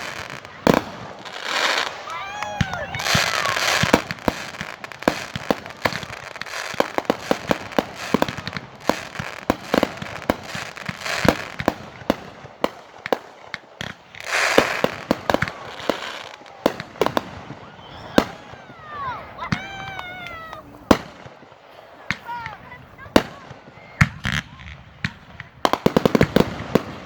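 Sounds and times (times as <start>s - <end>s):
fireworks crackling hiss: 0.0s - 27.0s
fireworks popping and banging: 0.0s - 27.0s.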